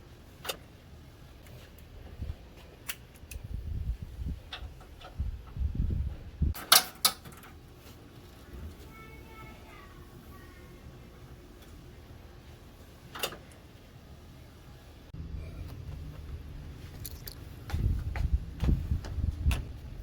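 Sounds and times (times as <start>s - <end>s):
low rumbling handling noise: 1.3s - 6.6s, 15.2s - 20.0s
clicks of tools being handled: 6.6s - 7.5s.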